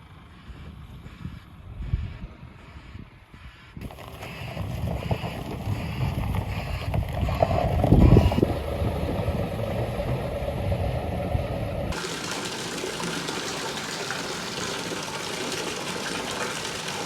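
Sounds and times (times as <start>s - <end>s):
wind buffeting microphone: 0.4s - 12.0s.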